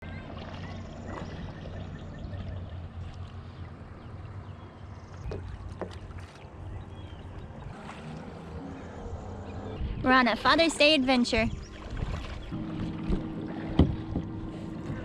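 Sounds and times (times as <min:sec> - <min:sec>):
paddle splashing water: 0:00.0 - 0:09.0, 0:10.5 - 0:15.0
low rumble: 0:11.4 - 0:15.0.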